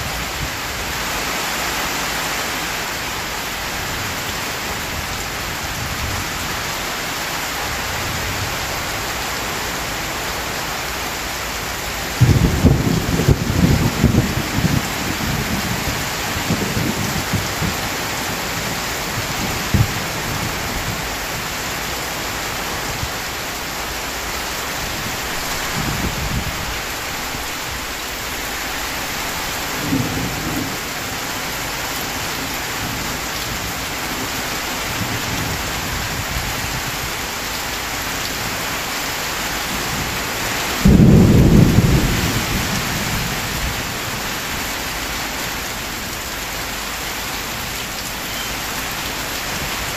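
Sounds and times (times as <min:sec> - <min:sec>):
heavy rain falling: 0:00.0 - 0:49.9
thunder rumbling: 0:12.1 - 0:21.5, 0:24.8 - 0:37.1, 0:39.9 - 0:44.4
loud thunderclap: 0:12.2 - 0:18.0, 0:18.6 - 0:21.0, 0:40.8 - 0:43.9.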